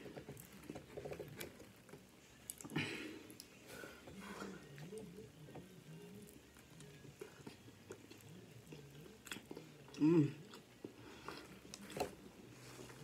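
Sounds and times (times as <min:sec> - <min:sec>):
person chewing and biting food: 0:06.2 - 0:13.0
person humming: 0:09.9 - 0:10.4.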